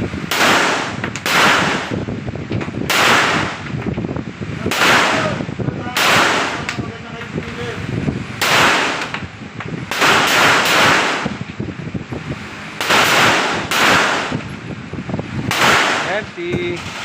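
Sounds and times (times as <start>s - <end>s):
gunshots with echo: 0.2s - 2.1s, 2.9s - 3.6s, 4.6s - 6.9s, 8.4s - 9.2s, 9.9s - 11.4s, 12.8s - 14.5s, 15.5s - 17.0s.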